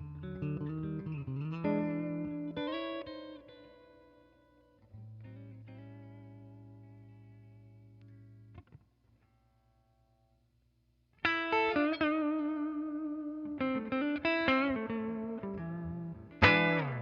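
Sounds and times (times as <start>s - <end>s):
clean electric guitar melody: 0.0s - 9.6s, 11.2s - 17.0s.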